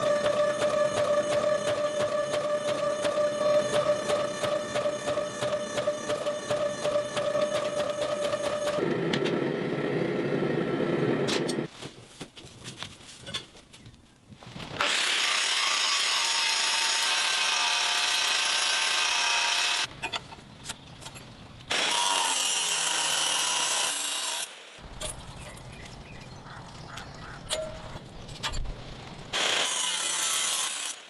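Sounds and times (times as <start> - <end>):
power grinder grinding steel: 14.8 - 19.9, 21.7 - 24.5, 29.4 - 31.0.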